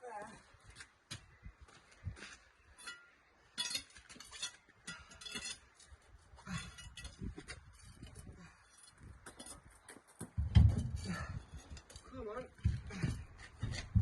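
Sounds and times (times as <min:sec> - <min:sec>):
metallic clinks and knocks: 0:02.8 - 0:14.0.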